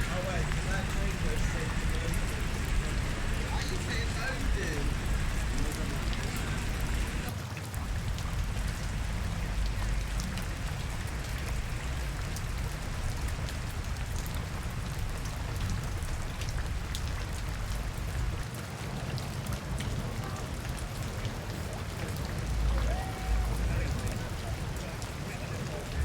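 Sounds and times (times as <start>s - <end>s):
constant low rumble: 0.0s - 18.5s
rain falling: 0.0s - 26.0s
raindrops ticking on surfaces: 0.0s - 26.0s.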